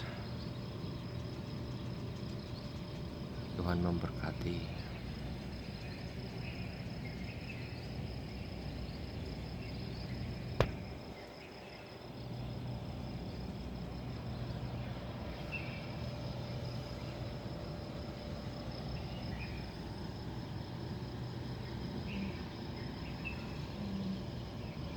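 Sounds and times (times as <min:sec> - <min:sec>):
cricket trill: 0:00.0 - 0:24.9
low background rumble: 0:00.0 - 0:24.9
sharp click: 0:10.6 - 0:11.0.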